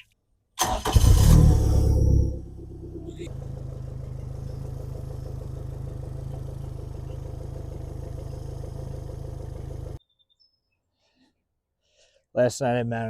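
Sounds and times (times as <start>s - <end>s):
outboard engine idling: 2.4s - 10.0s.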